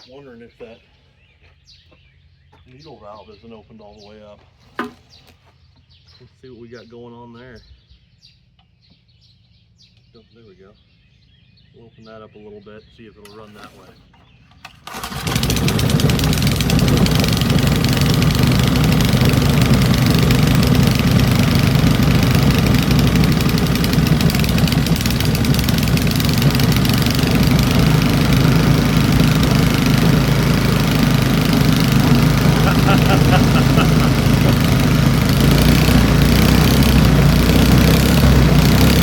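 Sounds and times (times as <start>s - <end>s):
small engine running: 14.6s - 39.0s.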